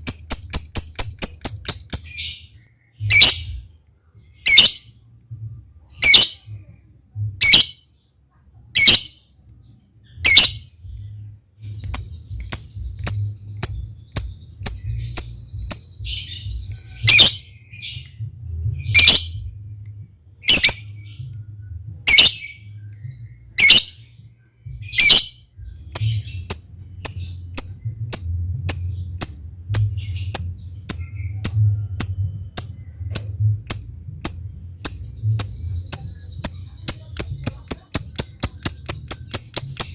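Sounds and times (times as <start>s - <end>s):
rapid ticking bird calls: 0.0s - 2.3s, 11.7s - 18.2s, 25.9s - 39.9s
faint low hum: 0.0s - 39.9s.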